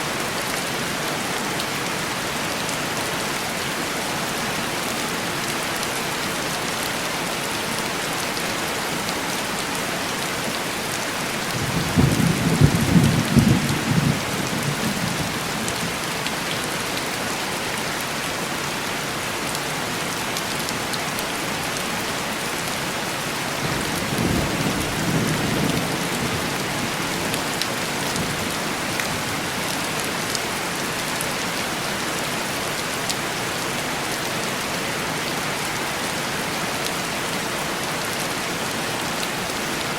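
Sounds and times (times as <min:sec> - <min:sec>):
heavy rain on window glass: 0:07.5 - 0:17.1, 0:23.3 - 0:32.4
thunder rumbling: 0:23.6 - 0:27.4.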